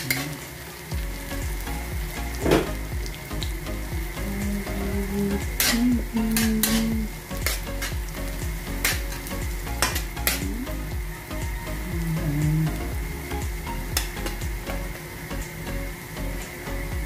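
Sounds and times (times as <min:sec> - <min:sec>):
onion and garlic sizzling in oil: 0:00.0 - 0:17.0
metal spatula scraping wok: 0:05.5 - 0:08.0, 0:08.7 - 0:10.4.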